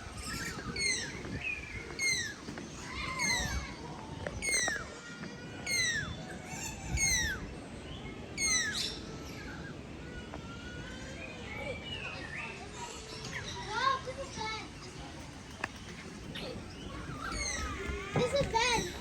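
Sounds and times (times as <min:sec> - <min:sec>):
bird harsh call: 0:16.2 - 0:19.0.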